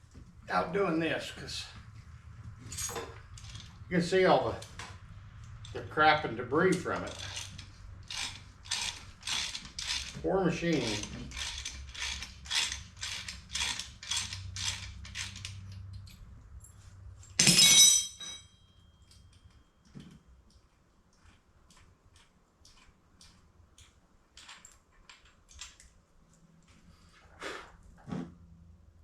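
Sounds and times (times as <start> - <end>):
metal clank with ring: 2.7 - 3.2, 17.4 - 19.1
ratchet wrench clicking: 6.7 - 15.6.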